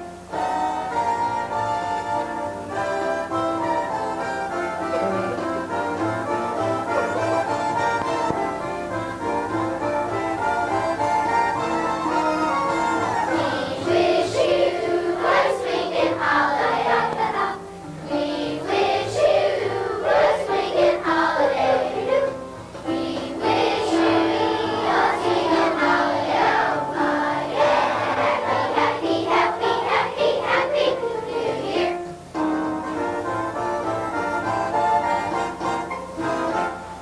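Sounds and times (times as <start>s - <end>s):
children's choir singing: 0.0s - 37.0s
instrumental accompaniment: 0.0s - 37.0s.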